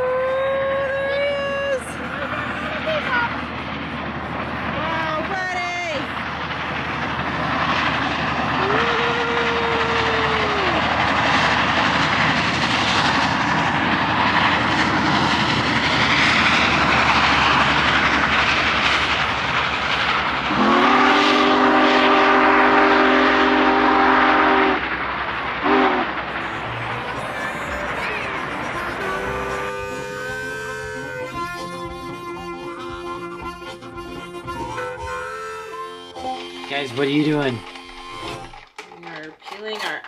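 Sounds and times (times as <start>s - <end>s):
steam locomotive rumbling past: 0.0s - 40.0s
steam whistle blasts: 20.4s - 24.9s, 25.6s - 26.6s, 27.2s - 38.4s.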